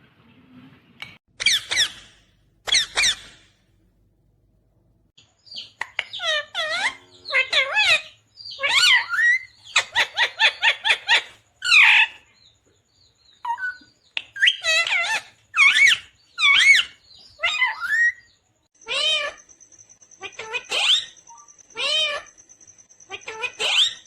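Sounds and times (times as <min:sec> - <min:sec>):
parakeet calling loudly: 0:01.4 - 0:03.5, 0:05.4 - 0:12.2, 0:14.4 - 0:18.2, 0:18.8 - 0:19.4, 0:20.2 - 0:22.4, 0:23.1 - 0:24.0.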